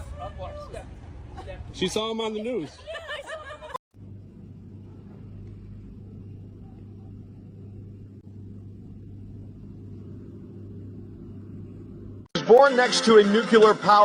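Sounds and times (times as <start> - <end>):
low hum: 3.9 - 12.3.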